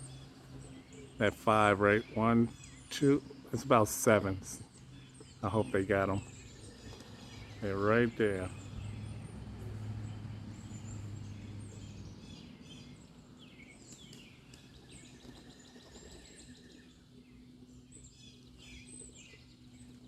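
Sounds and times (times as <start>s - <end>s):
low steady hum: 0.0s - 12.2s
songbirds chirping: 0.0s - 20.0s.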